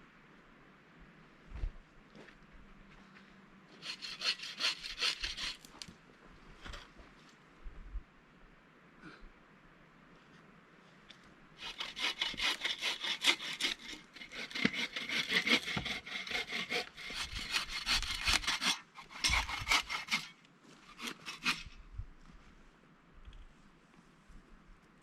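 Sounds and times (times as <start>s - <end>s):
saw cutting through wood: 3.8s - 5.7s, 11.6s - 21.8s.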